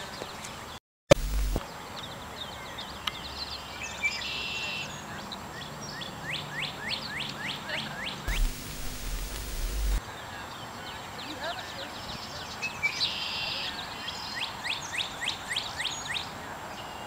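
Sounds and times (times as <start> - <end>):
birds chirping: 0.0 - 17.0
low rumbling noise: 8.3 - 10.0.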